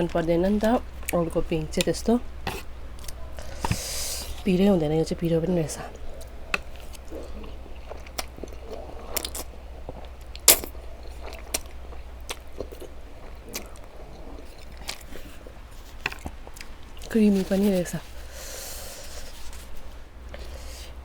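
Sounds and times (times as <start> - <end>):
faint low hum: 0.0 - 21.0
chewing noodles: 5.9 - 17.2.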